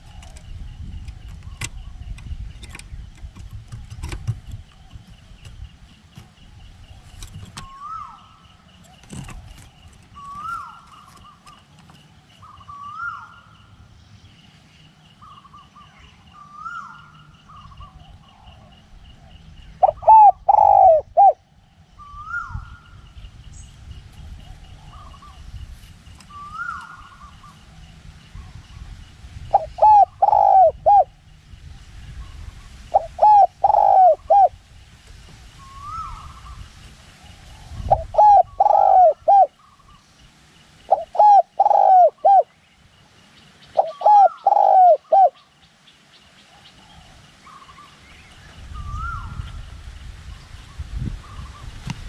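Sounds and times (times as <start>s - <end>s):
dove cooing: 0.0s - 6.3s, 6.9s - 13.5s, 15.2s - 21.4s, 29.5s - 31.2s, 32.9s - 34.6s, 37.6s - 39.8s, 40.9s - 42.5s, 43.8s - 45.4s.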